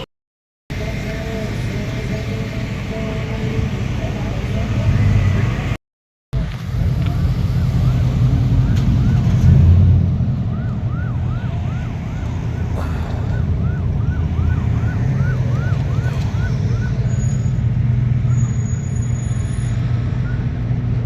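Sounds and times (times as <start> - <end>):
low vehicle rumble: 0.7 - 5.8, 6.4 - 21.0
siren sweeping up and down: 6.9 - 21.0.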